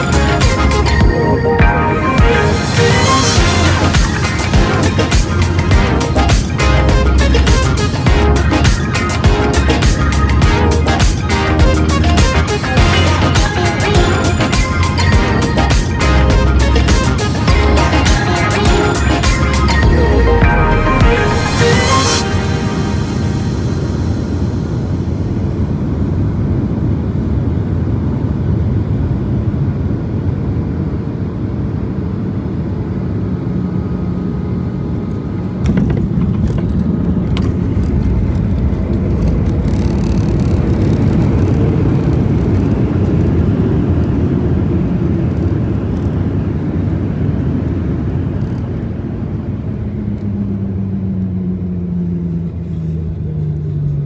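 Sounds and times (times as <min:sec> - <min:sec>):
vehicle low rumble: 0:00.0 - 0:21.9, 0:22.5 - 0:54.0
hum sliding down in pitch: 0:00.0 - 0:26.2.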